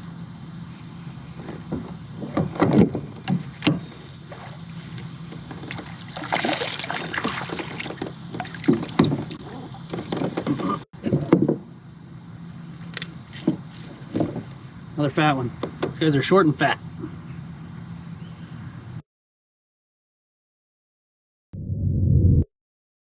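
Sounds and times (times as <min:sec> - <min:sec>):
water splashing: 0:05.6 - 0:10.1
low hum: 0:21.6 - 0:22.5.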